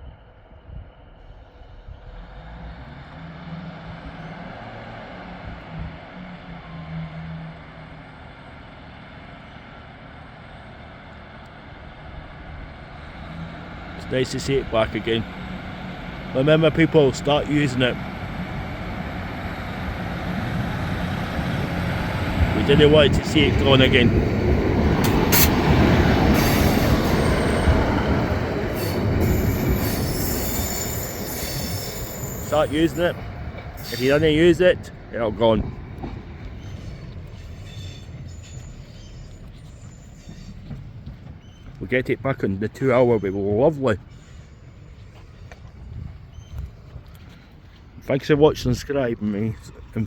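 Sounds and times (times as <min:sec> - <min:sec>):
diesel train running: 0:00.0 - 0:50.0
low engine hum: 0:00.0 - 0:50.0
wheels squealing on rails: 0:12.9 - 0:48.0.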